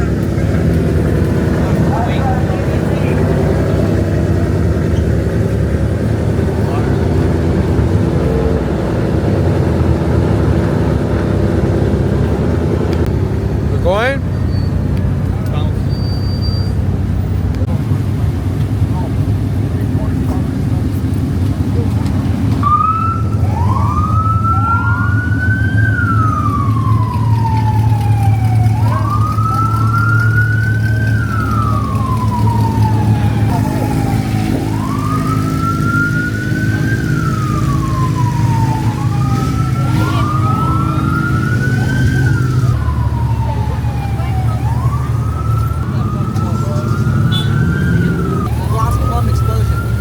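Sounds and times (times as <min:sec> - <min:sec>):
police siren wailing: 0:00.0 - 0:14.0, 0:18.9 - 0:50.0
car engine running: 0:00.0 - 0:15.8.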